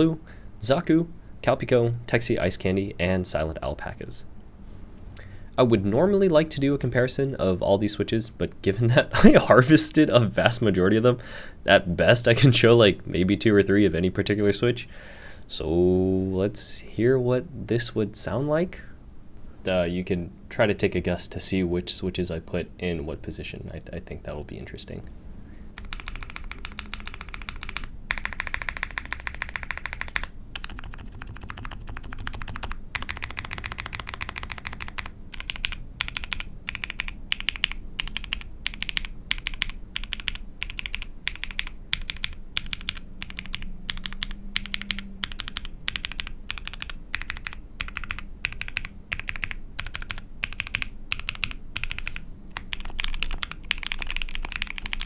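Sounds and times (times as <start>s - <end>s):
mechanical keyboard typing: 25.8s - 55.0s.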